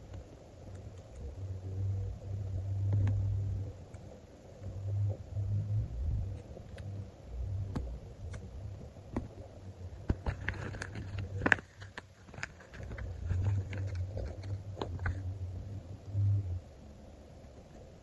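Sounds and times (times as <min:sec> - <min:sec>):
sticker sheets crackling: 0:09.1 - 0:15.3.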